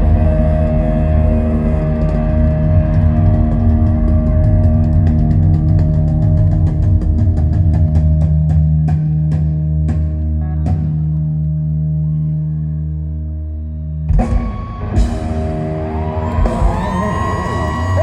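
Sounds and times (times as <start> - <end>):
guitars and bass ringing: 0.0 - 18.0.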